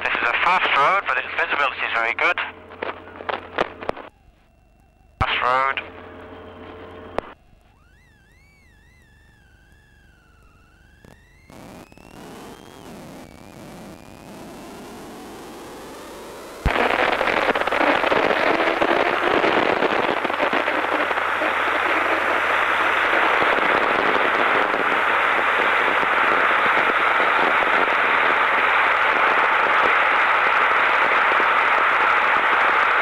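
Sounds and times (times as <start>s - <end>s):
radio hiss and wind noise: 0.0s - 4.5s, 5.2s - 33.0s
intercom radio click: 0.0s - 7.8s.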